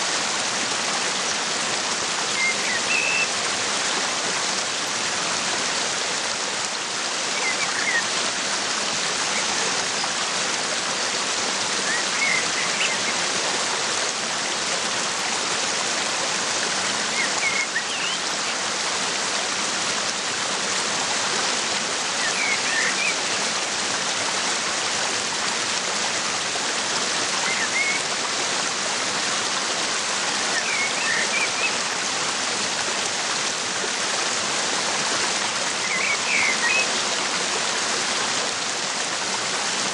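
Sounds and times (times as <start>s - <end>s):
waterfall rushing: 0.0s - 39.9s
bird chirping: 35.8s - 36.9s.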